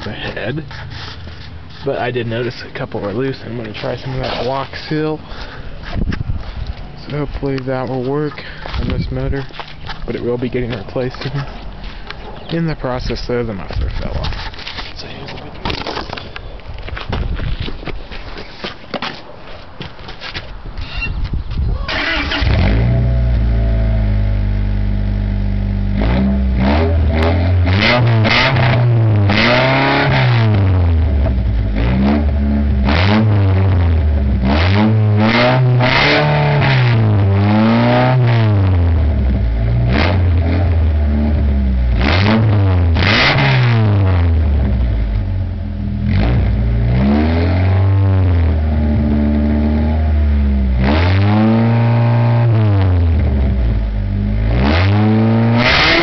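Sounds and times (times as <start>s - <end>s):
loud car engine revving: 21.9s - 56.0s.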